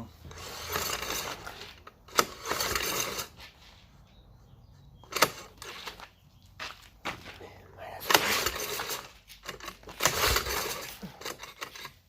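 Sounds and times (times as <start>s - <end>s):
pull-starter rope rushing out: 8.0s - 12.0s.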